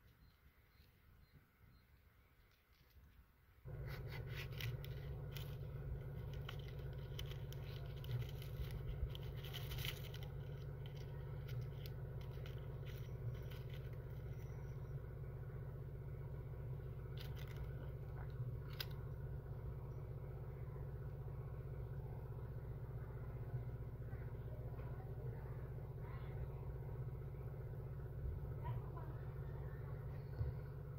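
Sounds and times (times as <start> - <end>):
scraping and clicking: 2.4 - 14.8, 17.0 - 19.0
motor humming: 3.7 - 25.6.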